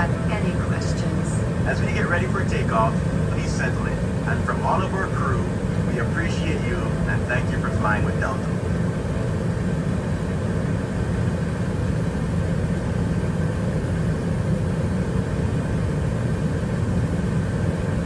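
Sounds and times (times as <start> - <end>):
airliner cabin rumble: 0.0 - 11.4.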